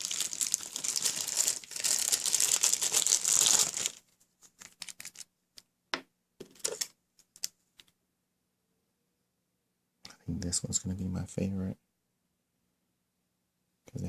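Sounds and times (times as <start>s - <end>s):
crinkling handling noise: 0.0s - 5.7s, 6.4s - 8.0s.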